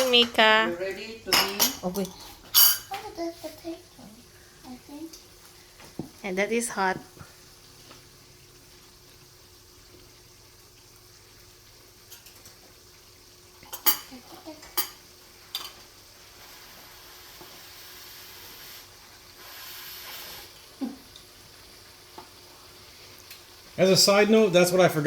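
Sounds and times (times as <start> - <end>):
cutlery clinking on a dish: 1.3 - 3.0, 13.6 - 15.8
faint hiss: 2.2 - 25.0.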